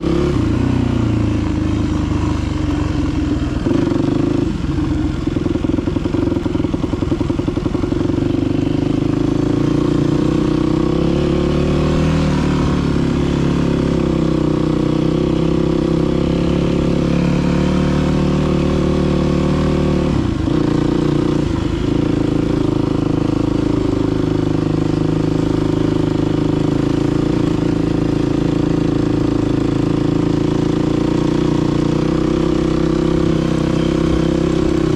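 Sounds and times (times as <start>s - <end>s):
dirt bike engine running: 0.0s - 34.9s.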